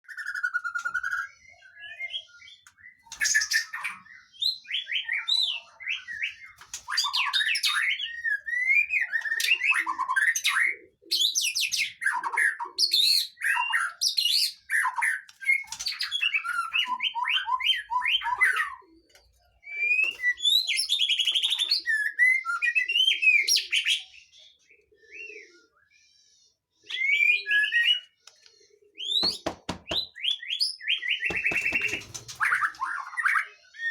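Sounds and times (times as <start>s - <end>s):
songbird singing: 27.8s - 33.9s.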